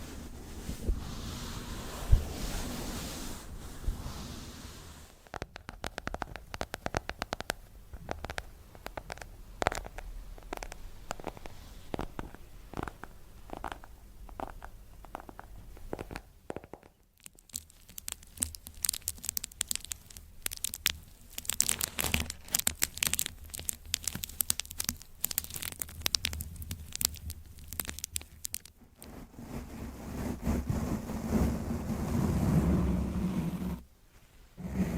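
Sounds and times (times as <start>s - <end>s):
crinkly scratching: 0.0s - 33.8s
taps and clicks: 5.2s - 19.2s.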